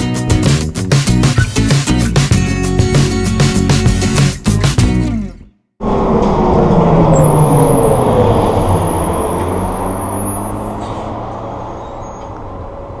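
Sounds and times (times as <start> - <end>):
engines winding down: 5.1 - 11.8.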